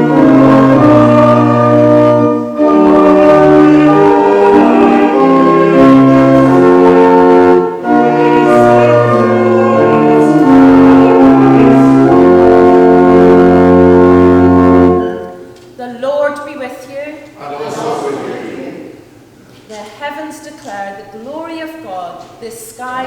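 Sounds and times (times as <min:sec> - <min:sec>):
church organ playing chords: 0:00.0 - 0:15.6.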